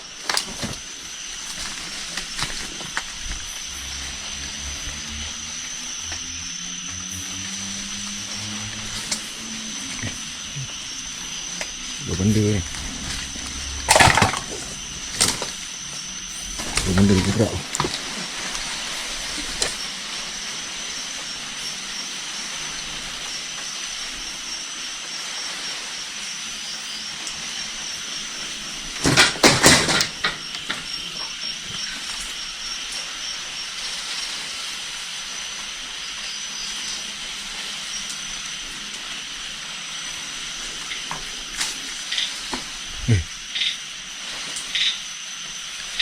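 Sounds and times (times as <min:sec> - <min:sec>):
thin high whine: 0:00.0 - 0:29.0
steady hiss: 0:00.0 - 0:46.0.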